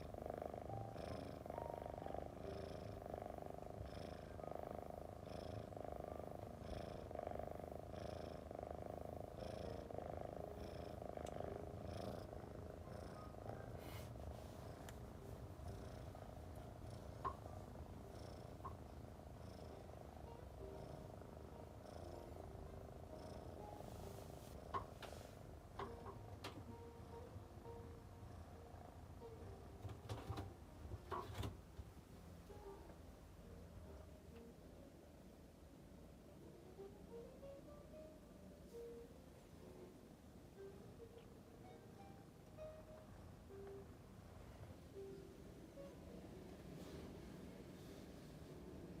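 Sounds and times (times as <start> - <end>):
cat purring: 0.0 - 49.0.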